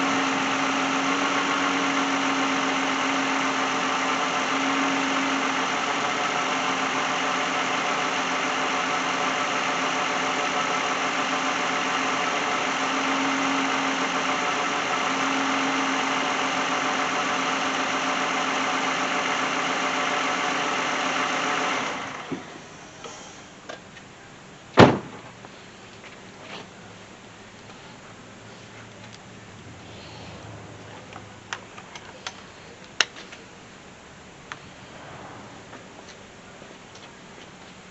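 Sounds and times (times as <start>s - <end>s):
car engine idling: 0.0s - 37.9s
sharp knock: 24.8s - 25.3s.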